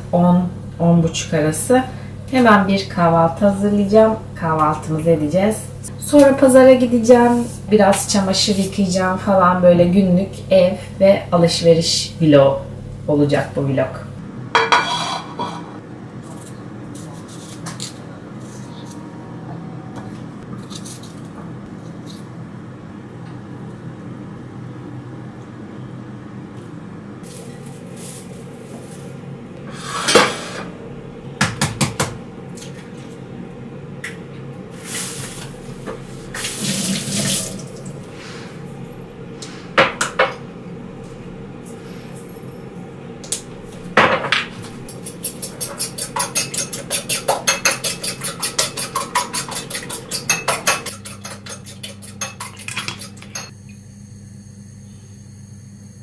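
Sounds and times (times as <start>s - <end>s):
dishes and cutlery clinking: 14.6s - 15.8s, 44.0s - 53.5s
water running from tap: 36.4s - 38.0s, 51.4s - 53.5s
utensil striking a dish rapidly: 44.9s - 53.5s.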